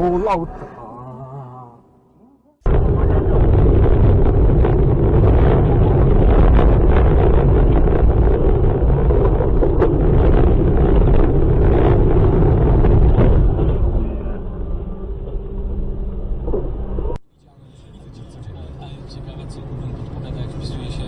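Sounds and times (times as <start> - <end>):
vehicle rumble: 0.0 - 21.0
crackles: 2.7 - 17.2
wind noise on microphone: 2.7 - 17.2.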